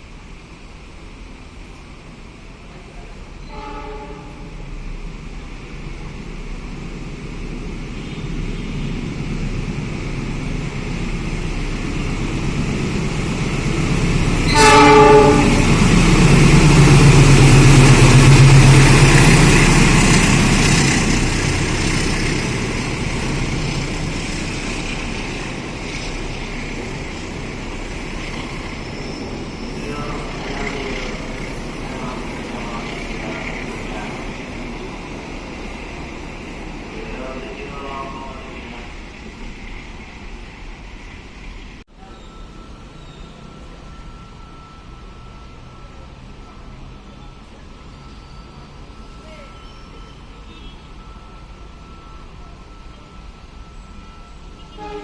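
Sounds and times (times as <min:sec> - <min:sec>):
train passing: 0:00.0 - 0:55.0
train horn blast: 0:03.4 - 0:04.5, 0:14.5 - 0:15.9, 0:54.6 - 0:55.0.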